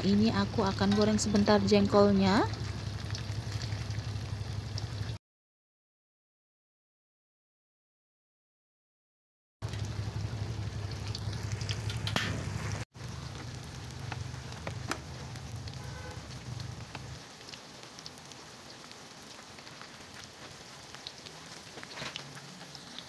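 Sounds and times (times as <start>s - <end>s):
frying in hot oil: 0.0s - 5.2s, 9.6s - 23.0s
low hum: 0.0s - 5.2s, 9.6s - 17.0s.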